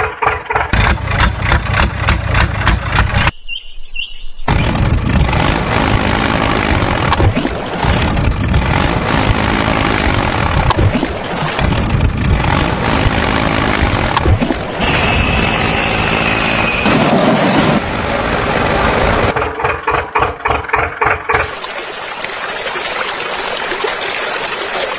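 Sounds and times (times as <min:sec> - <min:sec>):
rapid pulsing chug: 0:00.0 - 0:03.3
engine running and revving: 0:00.3 - 0:03.3, 0:04.5 - 0:21.5.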